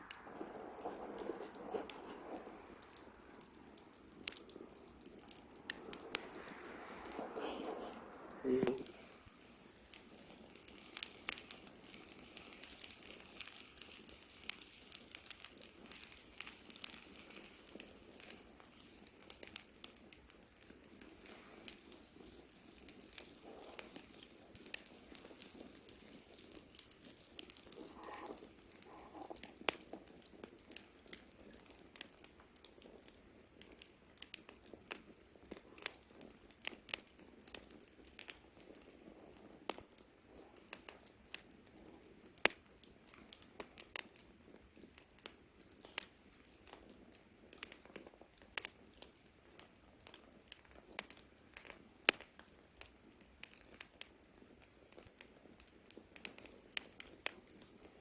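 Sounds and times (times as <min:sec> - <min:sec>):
campfire crackling: 0:00.0 - 0:58.0
hiss of burning: 0:00.0 - 0:58.0.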